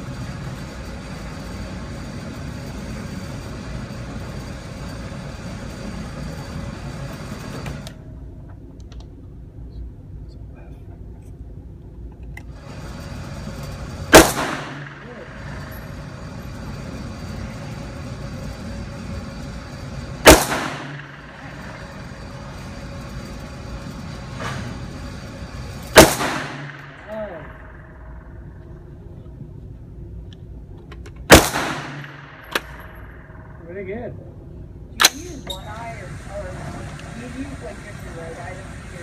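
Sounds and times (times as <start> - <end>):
faint distant gunshot: 14.1 - 15.7, 20.2 - 21.9, 26.0 - 28.2, 31.3 - 33.5
gunshots with echo: 14.1 - 16.0, 20.2 - 22.2, 25.9 - 28.4, 31.3 - 33.6.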